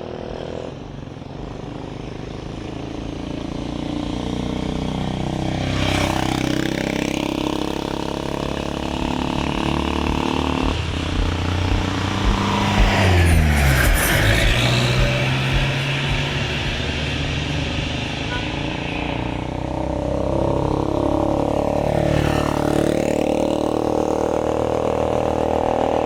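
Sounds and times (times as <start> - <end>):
vehicle engines running: 0.0 - 25.8
vehicle passing: 5.4 - 24.5.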